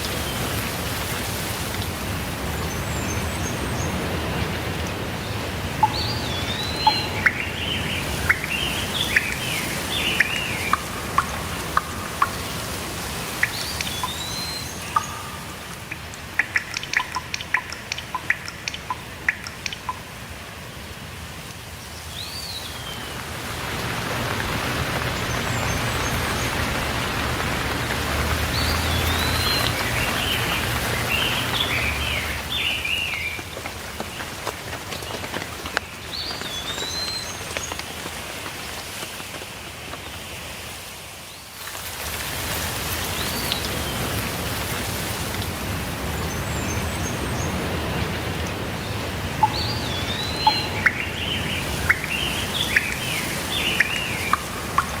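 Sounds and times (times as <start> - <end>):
steady rainfall: 0.0 - 55.0
birds chirping: 2.4 - 20.1, 24.0 - 33.5, 46.0 - 55.0.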